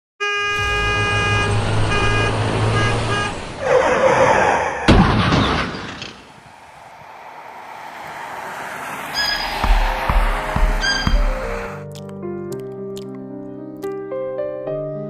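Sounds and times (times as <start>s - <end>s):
horn blasts: 0.2s - 3.7s, 9.2s - 11.8s
loud rush of noise: 6.2s - 11.8s.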